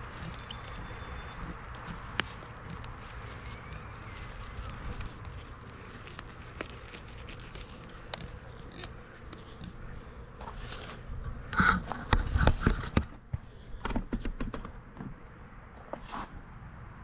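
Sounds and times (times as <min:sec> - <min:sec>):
honey bees buzzing: 0:00.0 - 0:12.1.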